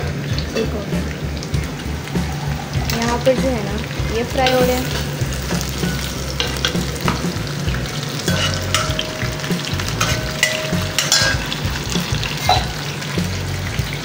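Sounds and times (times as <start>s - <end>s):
food frying in oil: 0.0s - 14.0s
ladle clicking against pan: 4.4s - 14.0s.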